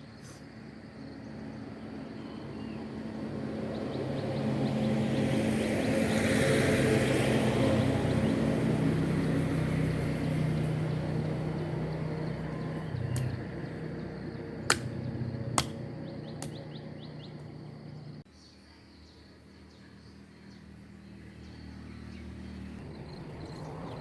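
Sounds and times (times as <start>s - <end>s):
engine hum: 0.0s - 18.3s, 20.1s - 24.0s
sharp clicks: 14.7s - 15.0s.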